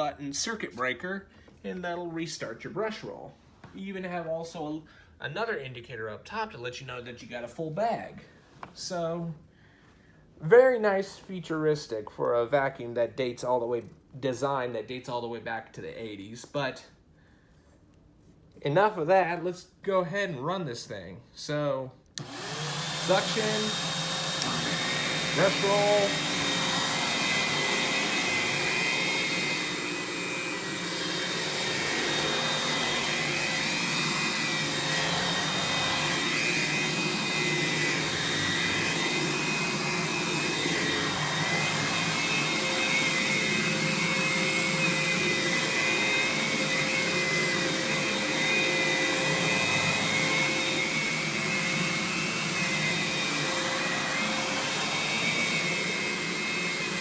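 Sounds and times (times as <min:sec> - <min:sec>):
upright vacuum whining: 0:22.2 - 0:57.0.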